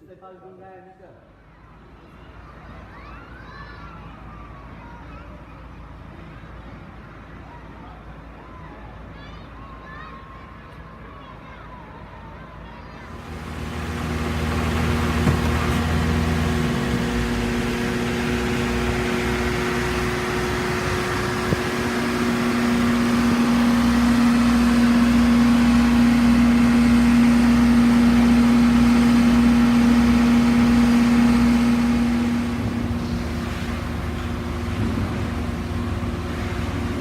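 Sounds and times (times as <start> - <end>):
motor running: 13.1 - 37.0
strong hum: 13.1 - 37.0.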